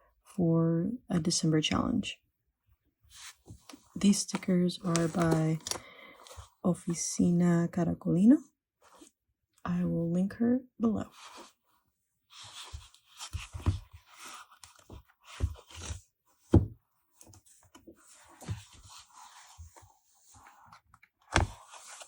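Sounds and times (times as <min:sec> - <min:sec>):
paper rustling: 0:03.1 - 0:06.5, 0:17.3 - 0:22.0.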